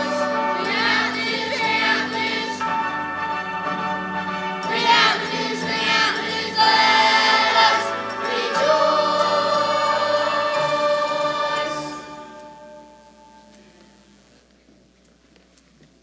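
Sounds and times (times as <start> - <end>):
choir singing: 0.0 - 3.4, 4.6 - 13.2
instrumental accompaniment: 0.0 - 14.3.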